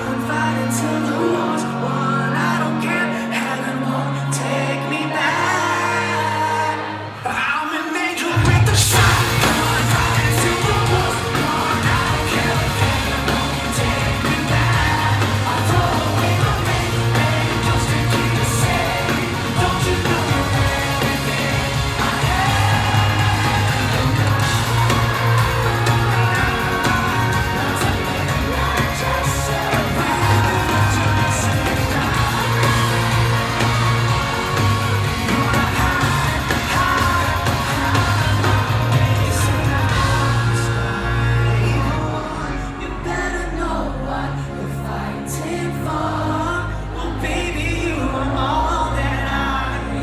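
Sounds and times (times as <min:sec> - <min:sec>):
person singing: 0:00.0 - 0:50.0
pop-rock band playing: 0:08.4 - 0:45.1
heavy bass line: 0:08.5 - 0:50.0.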